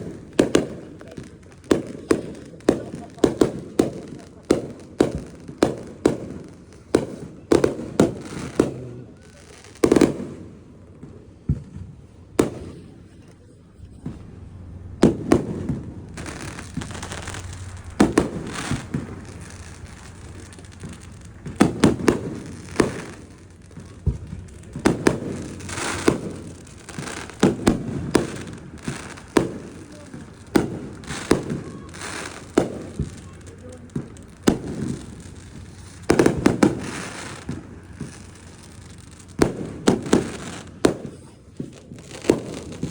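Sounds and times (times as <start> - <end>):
fireworks bangs: 0.0 - 42.9
steady hiss: 12.8 - 40.8.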